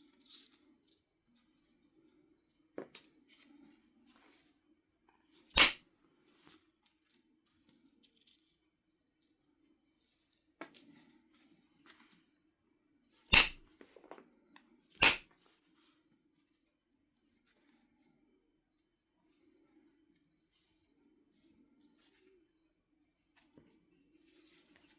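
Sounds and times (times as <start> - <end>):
sharp strikes on stone: 5.6 - 5.8, 13.3 - 13.6, 15.0 - 15.3.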